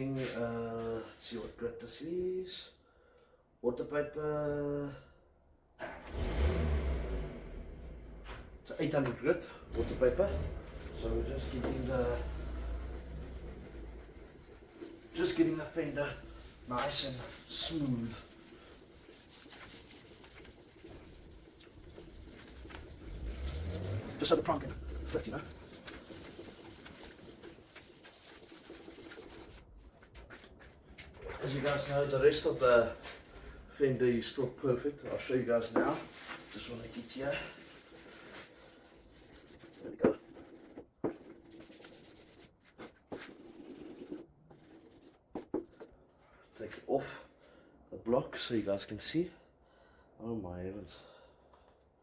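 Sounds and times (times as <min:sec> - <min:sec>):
sandpaper rubbing on car paint: 0:09.6 - 0:29.7, 0:31.2 - 0:32.9, 0:35.6 - 0:45.9.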